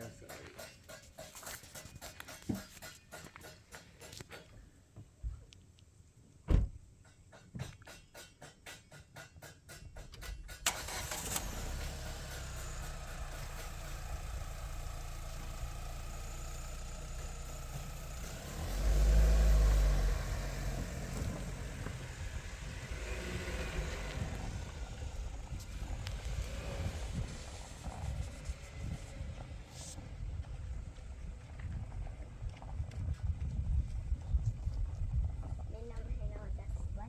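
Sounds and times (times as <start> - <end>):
car engine cranking and starting: 10.0 - 33.0.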